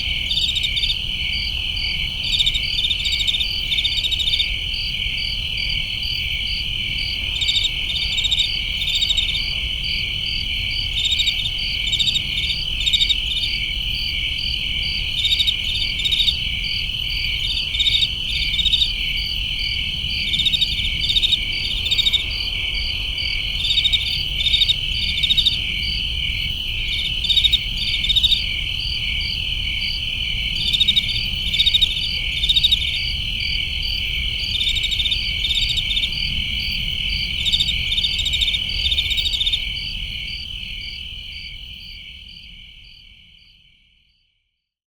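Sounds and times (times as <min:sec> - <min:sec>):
crickets trilling: 0:00.0 - 0:43.5
cricket chirps: 0:00.0 - 0:44.5.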